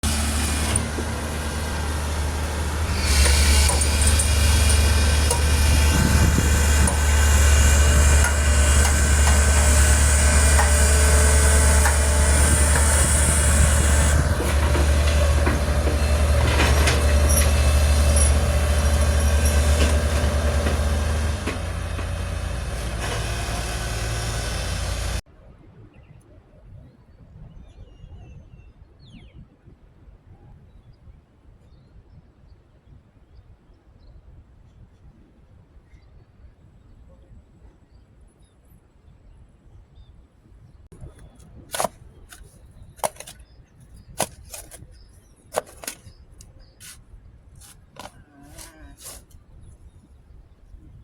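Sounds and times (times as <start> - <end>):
diesel machinery engine rumble: 0.0 - 25.2
high metallic squealing: 0.1 - 14.4.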